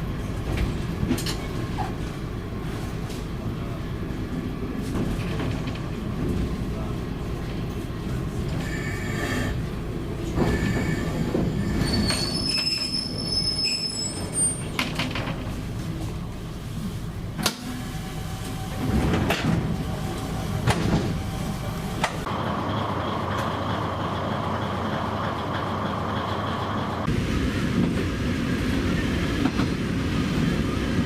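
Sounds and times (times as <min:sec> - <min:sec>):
diesel railcar running: 0:00.0 - 0:31.0
wheels squealing: 0:10.5 - 0:14.9.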